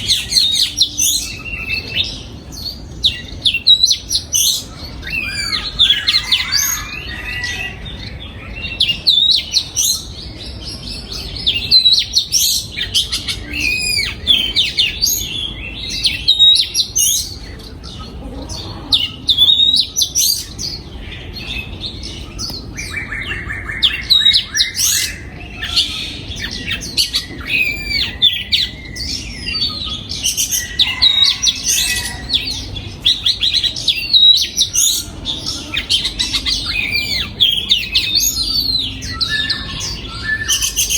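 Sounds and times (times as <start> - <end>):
bird singing whistles and chirps: 21.4 - 40.9.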